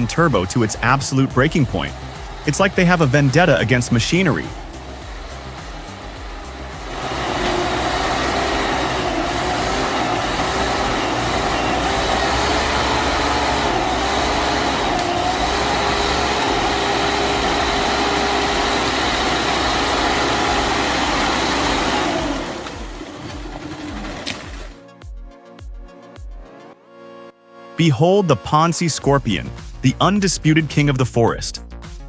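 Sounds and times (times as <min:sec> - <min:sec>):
diesel engine under heavy load: 0:00.0 - 0:24.8.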